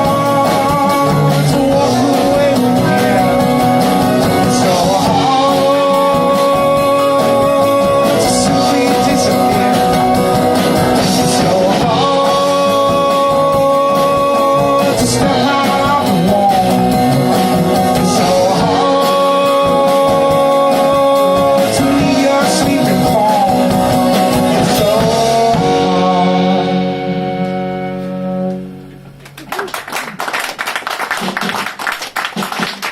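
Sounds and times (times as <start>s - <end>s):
person singing: 0.0s - 27.6s
folk band playing: 0.0s - 29.4s
guitar playing: 0.0s - 29.5s
audience clapping: 29.0s - 32.9s.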